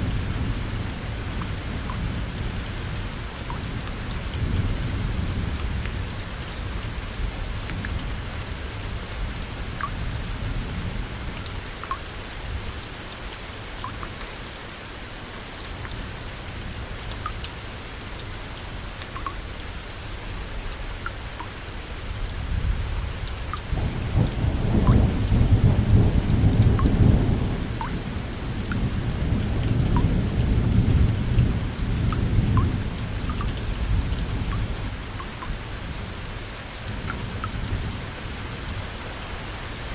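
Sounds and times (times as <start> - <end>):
heavy rain: 0.0 - 39.9
thunder rumbling: 23.7 - 33.1.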